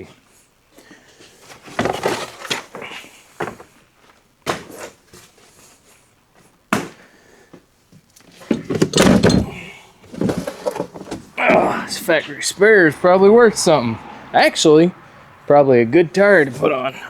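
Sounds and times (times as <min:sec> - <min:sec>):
junk knocking in car boot: 0:08.3 - 0:12.0
heavy clatter with thud: 0:08.4 - 0:11.6.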